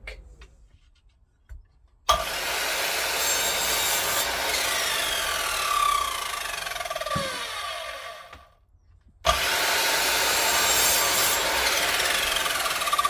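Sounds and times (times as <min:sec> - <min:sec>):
power tool whining on wood: 0:02.1 - 0:08.5, 0:09.3 - 0:13.0.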